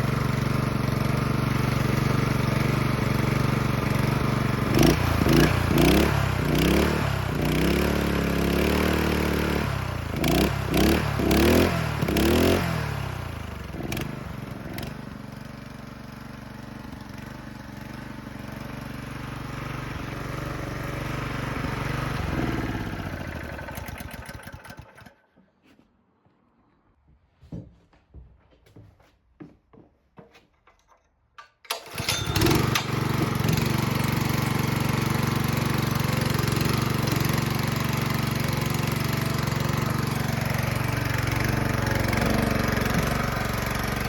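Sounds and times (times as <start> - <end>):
small engine revving: 0.0 - 16.0, 16.6 - 25.2, 31.9 - 44.0.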